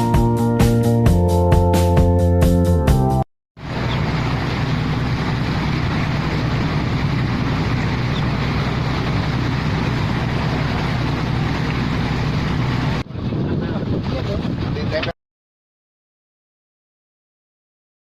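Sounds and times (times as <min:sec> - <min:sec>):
boat engine running: 0:03.6 - 0:15.1.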